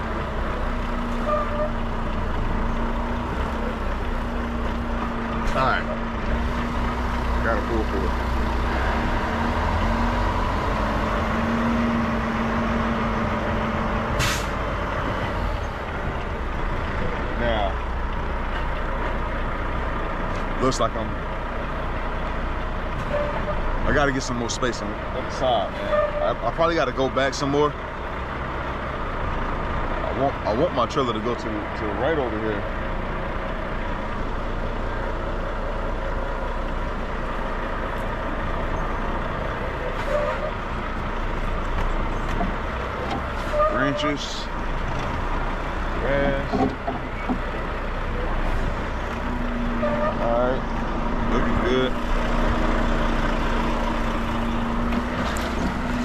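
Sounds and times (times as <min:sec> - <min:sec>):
truck diesel engine running: 0:00.0 - 0:56.0
air-brake hiss: 0:14.2 - 0:14.6.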